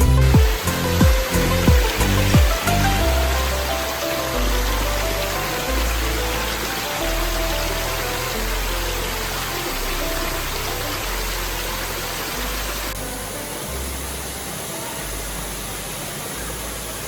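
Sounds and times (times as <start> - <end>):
low bass background music: 0.0 - 17.0
waterfall rushing: 0.0 - 17.0.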